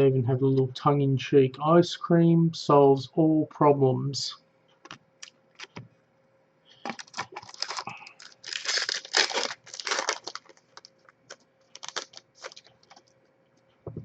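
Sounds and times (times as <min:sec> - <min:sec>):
cards clicking and rustling: 0:06.9 - 0:13.1
wrapper tearing and crinkling: 0:06.9 - 0:13.1.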